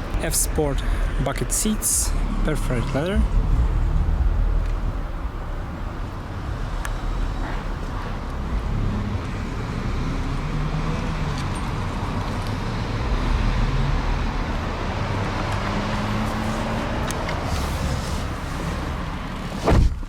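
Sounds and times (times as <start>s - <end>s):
vehicle engines passing: 0.0s - 19.8s
road traffic rumble: 0.0s - 20.0s.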